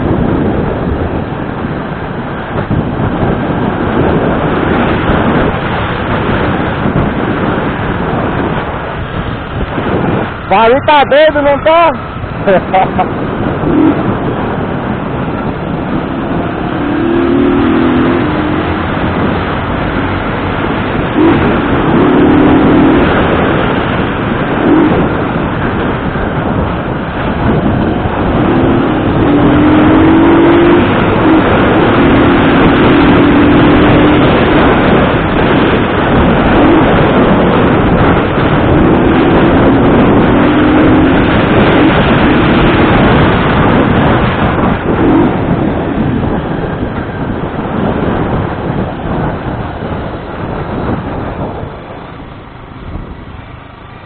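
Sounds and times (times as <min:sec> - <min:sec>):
motorcycle engine accelerating: 0:00.0 - 0:54.0
wind and road noise: 0:00.0 - 0:54.0.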